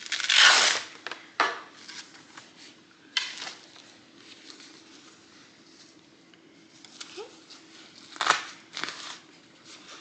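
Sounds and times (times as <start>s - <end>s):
faint steady hum: 0.0s - 10.0s
rustling and handling sounds: 0.0s - 10.0s.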